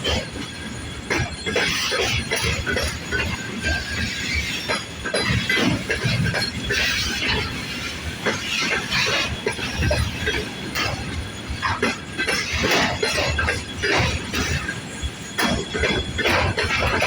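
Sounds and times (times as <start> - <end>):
train wheels clattering and clanking: 0.0 - 17.0.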